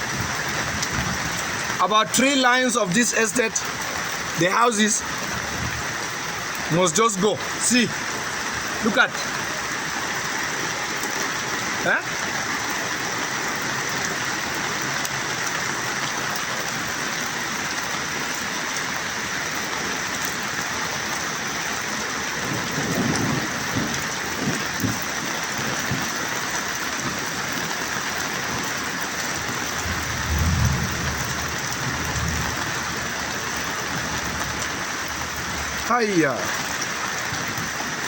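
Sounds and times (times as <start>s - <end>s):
steady rain: 0.0s - 38.0s
low rumbles: 29.3s - 35.9s.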